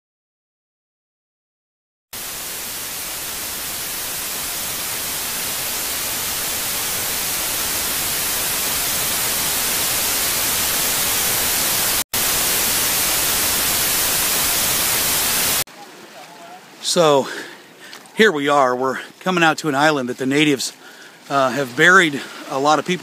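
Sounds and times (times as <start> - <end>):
loud static hiss: 2.2 - 15.7.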